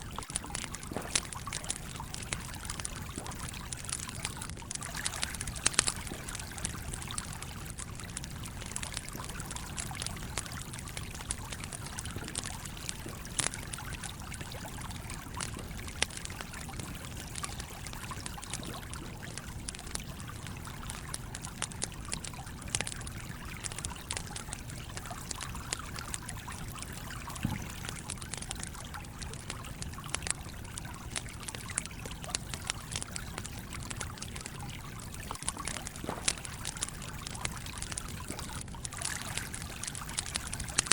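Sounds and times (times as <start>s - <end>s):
stream flowing: 0.0s - 19.0s, 33.8s - 40.9s
campfire crackling: 0.0s - 40.9s.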